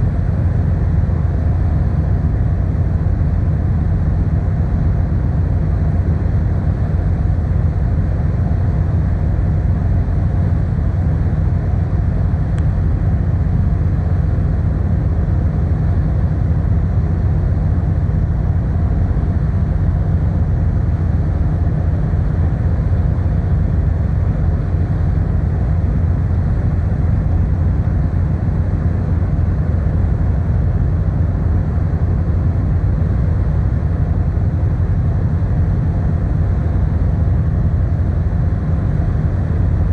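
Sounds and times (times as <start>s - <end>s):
ferry engine drone: 0.0s - 39.9s.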